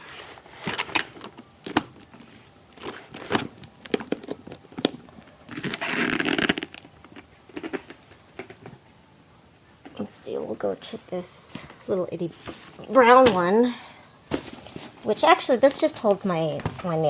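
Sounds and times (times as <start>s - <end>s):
case scraping: 0.1s - 8.6s
clicks and knocks from cases: 0.6s - 5.8s.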